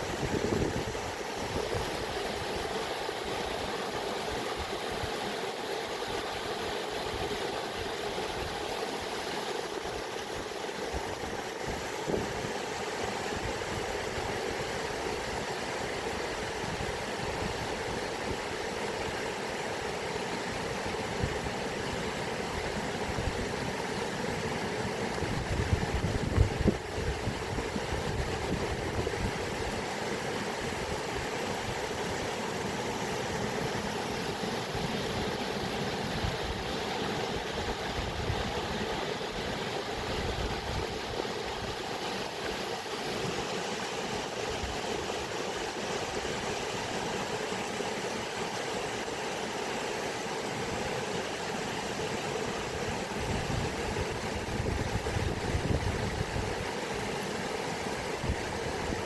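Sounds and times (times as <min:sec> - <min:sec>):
water rushing: 0:00.0 - 0:59.0.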